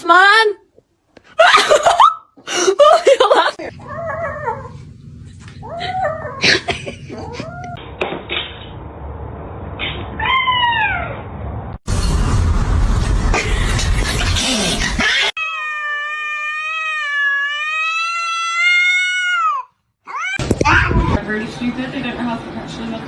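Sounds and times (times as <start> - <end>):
cat meowing: 10.2 - 11.2, 15.4 - 21.1
loud rushing noise: 11.3 - 15.0.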